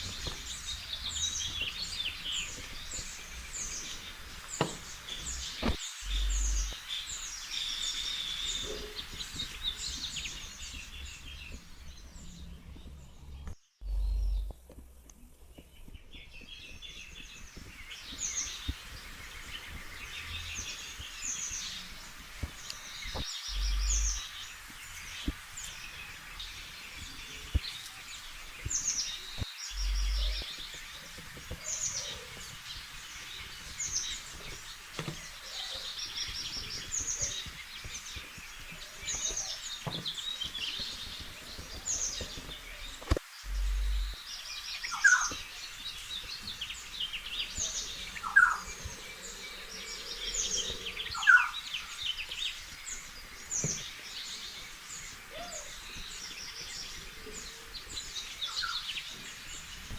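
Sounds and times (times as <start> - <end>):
birds chirping and singing: 0.0 - 59.9
steady background hiss: 0.0 - 59.9
soft knocks: 4.6 - 5.8.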